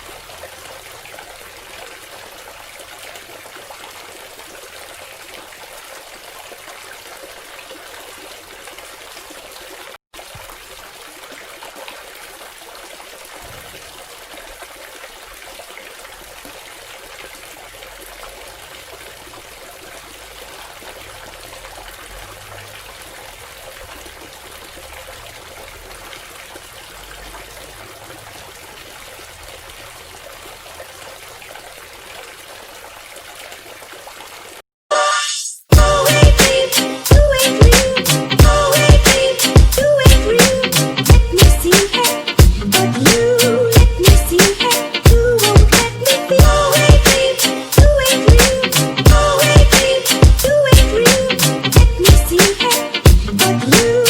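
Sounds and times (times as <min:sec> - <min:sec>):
fountain water trickling: 0:00.0 - 0:34.6.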